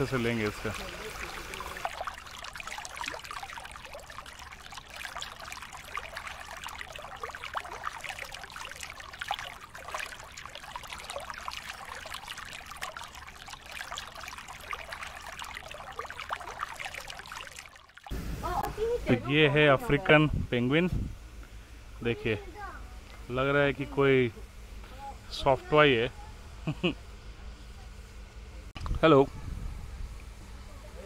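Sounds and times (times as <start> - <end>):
water trickling and splashing: 0.0 - 20.1.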